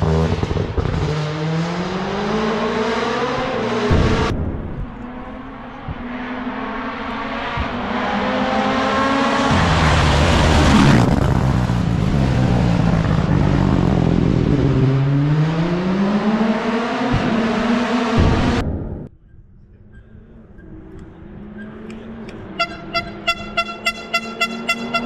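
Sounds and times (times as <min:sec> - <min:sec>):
rally car engine passing: 0:00.0 - 0:19.1.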